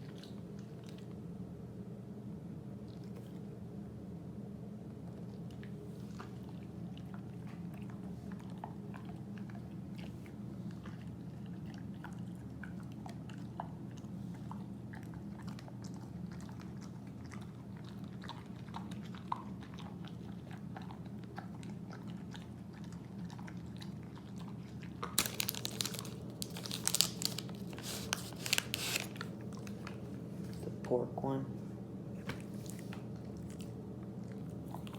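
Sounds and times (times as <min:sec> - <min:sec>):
dog chewing hard treat: 0:05.2 - 0:30.6.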